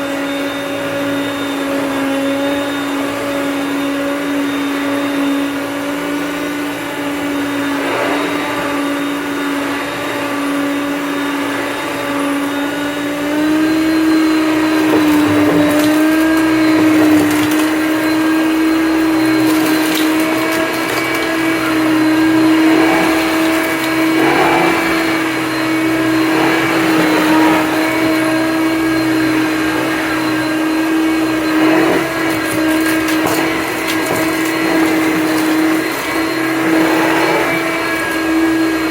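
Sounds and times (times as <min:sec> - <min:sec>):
vacuum cleaner motor hum: 0:00.0 - 0:38.9
crackles of debris picked up: 0:13.7 - 0:25.0.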